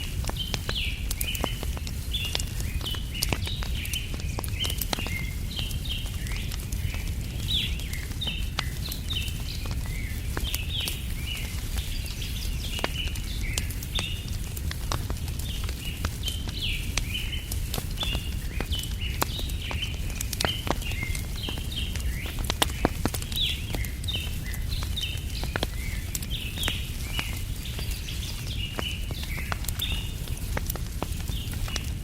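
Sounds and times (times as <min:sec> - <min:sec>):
small birds chirping: 0:00.0 - 0:32.0
wood fire crackling and popping: 0:00.0 - 0:32.0.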